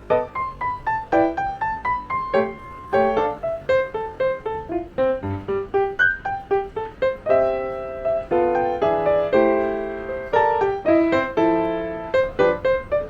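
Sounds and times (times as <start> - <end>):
solo piano melody and chords: 0.0 - 13.0.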